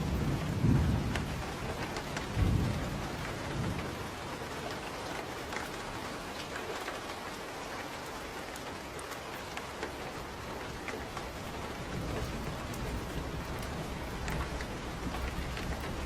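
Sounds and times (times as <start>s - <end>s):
steady rain falling: 0.0s - 16.0s
drip ticks: 10.8s - 16.0s.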